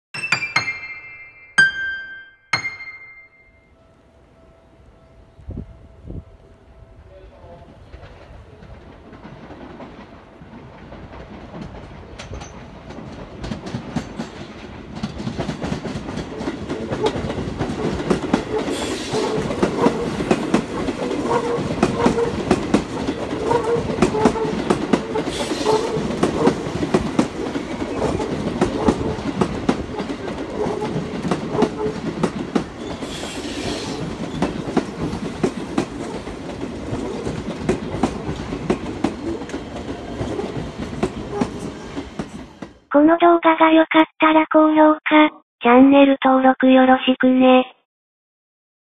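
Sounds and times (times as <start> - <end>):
electric train passing close: 3.7 - 42.8.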